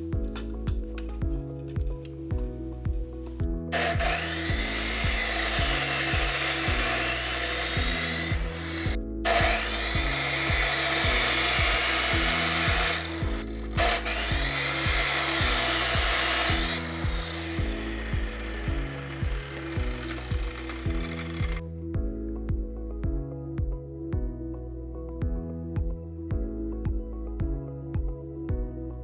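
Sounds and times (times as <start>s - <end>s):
background music with steady beat: 0.0s - 29.0s
hand-held power tool running: 3.7s - 21.6s.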